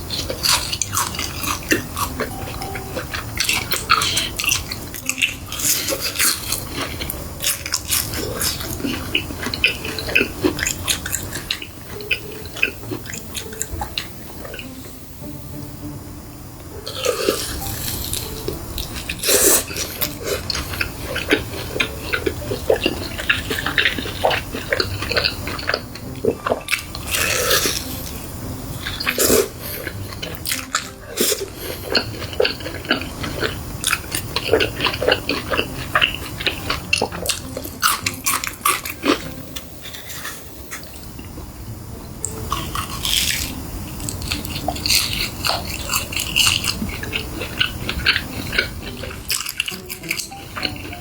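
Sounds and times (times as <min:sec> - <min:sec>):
crunchy bites and wet chewing: 0:03.6 - 0:13.5, 0:16.9 - 0:27.8, 0:28.8 - 0:39.3, 0:42.5 - 0:51.0.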